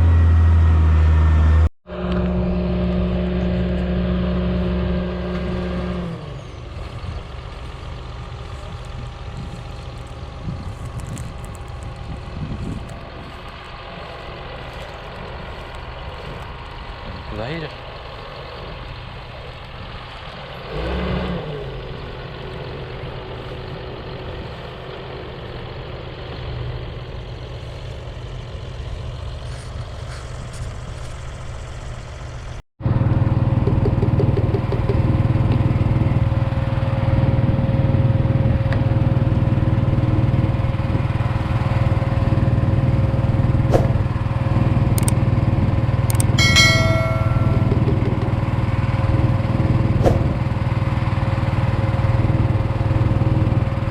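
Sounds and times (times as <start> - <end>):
engine drone: 0.0 - 53.9
tractor engine running: 0.0 - 53.9
high-pitched tone: 46.1 - 48.7.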